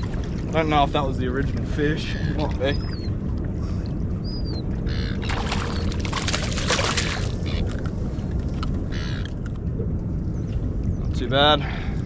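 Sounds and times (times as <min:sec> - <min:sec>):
steady low rumble: 0:00.0 - 0:12.0
fish splashing at water surface: 0:05.2 - 0:07.5.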